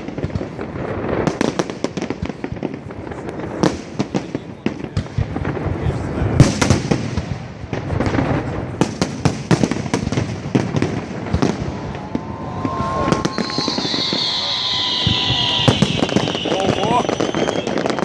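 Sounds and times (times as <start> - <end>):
fireworks bangs and crackles: 0.0 - 18.0
firework hiss with whistling: 9.7 - 18.0.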